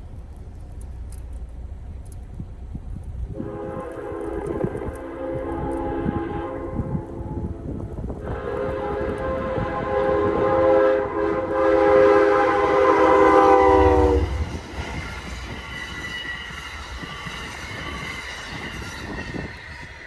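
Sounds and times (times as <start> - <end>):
train rumbling past: 0.0 - 20.0
locomotive horn chord: 3.3 - 14.6
wheels clacking on rail joints: 13.1 - 20.0.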